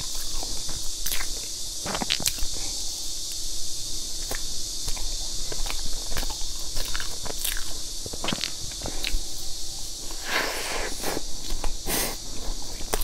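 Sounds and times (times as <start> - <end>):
mouth clicks and smacks: 0.0 - 2.5
chewing cake: 0.0 - 3.4, 4.2 - 9.4, 10.0 - 13.0
steady hiss: 0.0 - 13.0.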